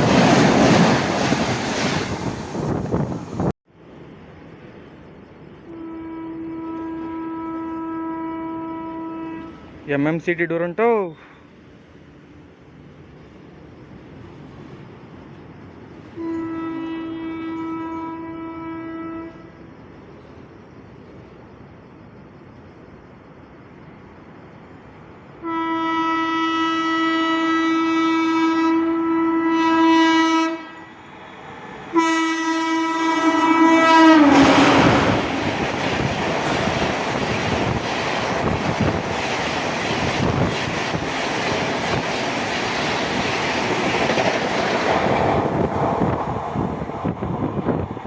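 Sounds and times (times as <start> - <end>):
train passing with rail clatter: 0.0 - 48.0
train horn blasts: 5.7 - 9.8, 16.1 - 19.6, 25.4 - 31.0, 31.9 - 35.5.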